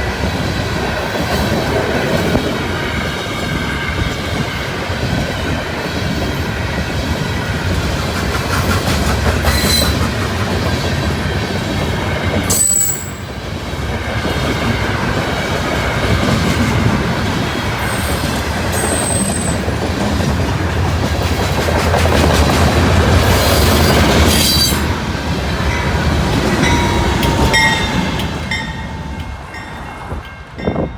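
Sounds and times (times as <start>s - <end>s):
wind buffeting microphone: 0.0s - 12.5s, 13.3s - 30.9s
freight train cars rolling past: 0.0s - 30.9s
wheel squeals: 9.4s - 10.1s, 12.5s - 13.3s, 17.8s - 19.8s, 23.4s - 24.9s.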